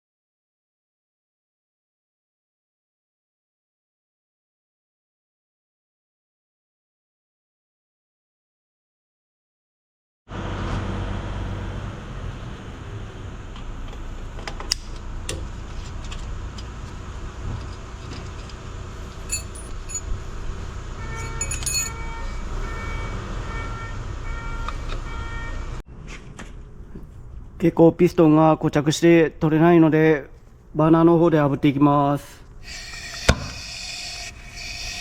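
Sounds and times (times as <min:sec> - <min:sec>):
metal parts clinking: 0:19.2 - 0:20.1, 0:21.2 - 0:22.0
short metallic rings: 0:19.3 - 0:20.2, 0:21.1 - 0:22.1.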